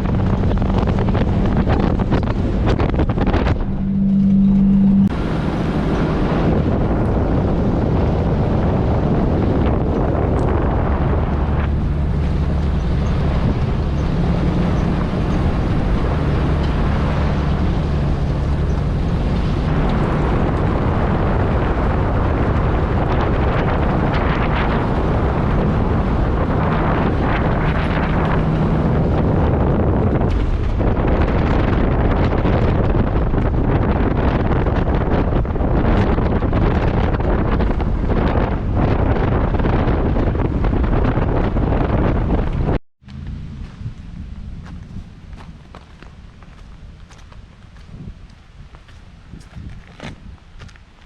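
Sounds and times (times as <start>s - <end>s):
loud steady hum: 0.0s - 39.3s
off-road vehicle engine: 0.0s - 50.9s
wind noise on microphone: 0.0s - 51.0s.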